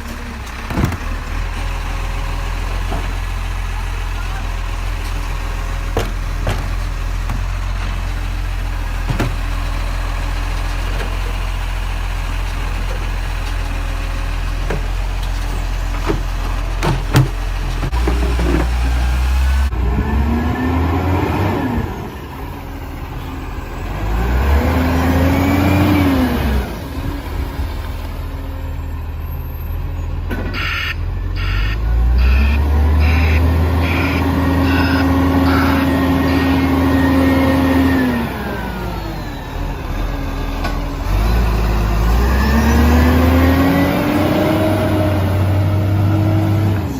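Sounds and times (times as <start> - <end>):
diesel engine running and revving: 0.0 - 46.9.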